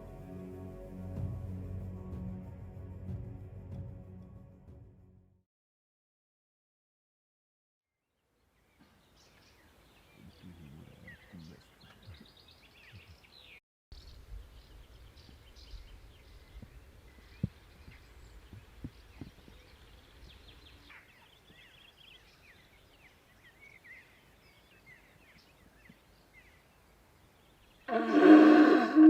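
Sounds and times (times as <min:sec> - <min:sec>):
small birds chirping: 0:08.4 - 0:28.0.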